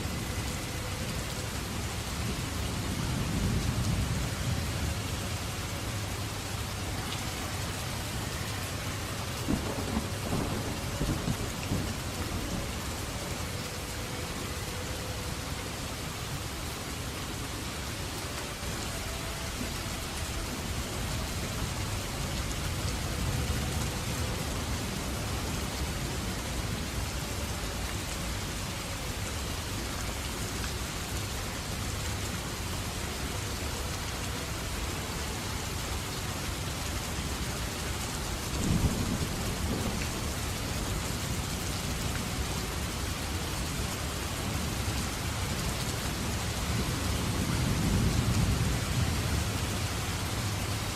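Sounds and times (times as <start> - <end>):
dense rainfall: 0.0 - 50.9
thunder rumbling: 1.2 - 14.5, 38.5 - 41.6.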